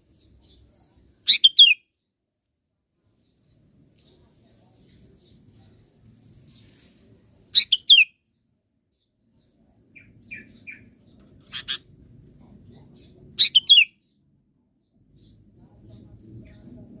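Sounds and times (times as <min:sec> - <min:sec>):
soft bird chirps: 0:00.0 - 0:02.1, 0:03.0 - 0:17.0
bird singing: 0:12.7 - 0:16.1.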